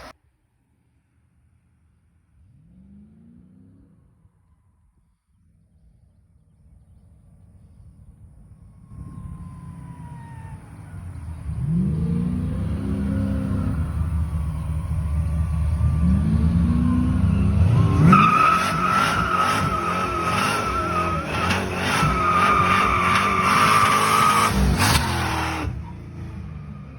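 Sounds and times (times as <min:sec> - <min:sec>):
car engine revving: 0:08.8 - 0:26.9
tyre squeal: 0:17.1 - 0:26.0.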